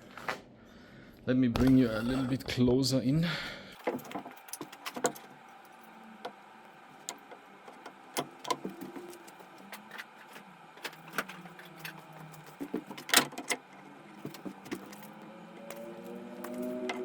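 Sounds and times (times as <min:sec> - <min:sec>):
electric tool motor humming: 0:04.8 - 0:17.0.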